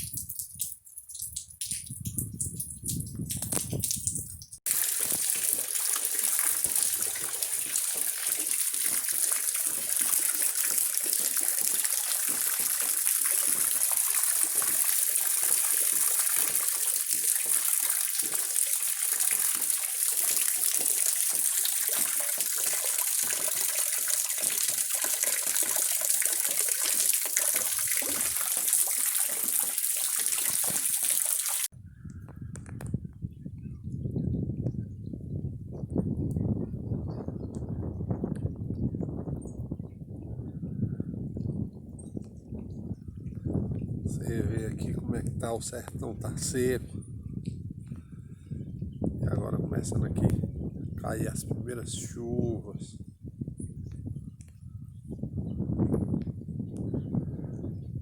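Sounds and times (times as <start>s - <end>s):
rain falling: 2.5s - 31.7s.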